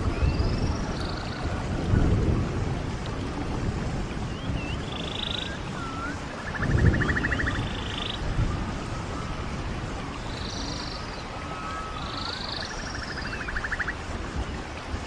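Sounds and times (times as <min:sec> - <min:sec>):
birds whistling and trilling: 0:00.0 - 0:01.8, 0:04.2 - 0:14.6
running stream: 0:00.0 - 0:15.0.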